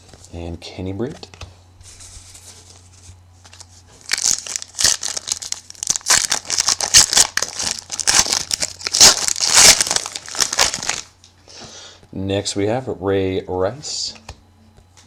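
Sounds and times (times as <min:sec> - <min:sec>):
low steady hum: 0:00.0 - 0:15.0
foil wrapper tearing and crinkling: 0:03.4 - 0:11.1.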